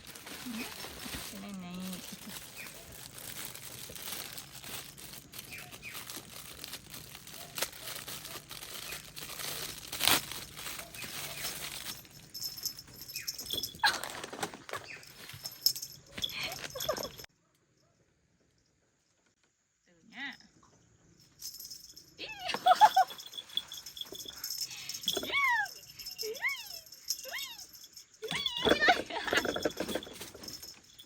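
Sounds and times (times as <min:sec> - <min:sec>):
plastic packaging crinkling: 0:00.0 - 0:17.3, 0:28.3 - 0:31.0.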